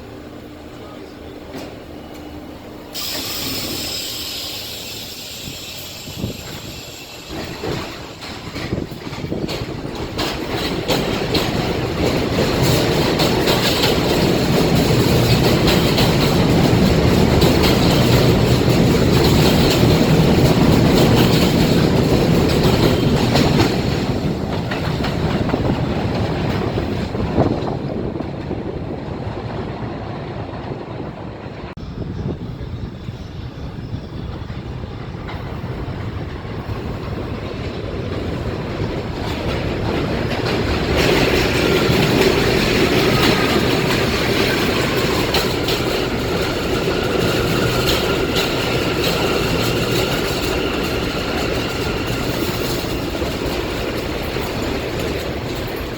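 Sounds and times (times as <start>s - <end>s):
train wheels clattering on rails: 0.8s - 55.9s
high squeal: 2.9s - 8.0s.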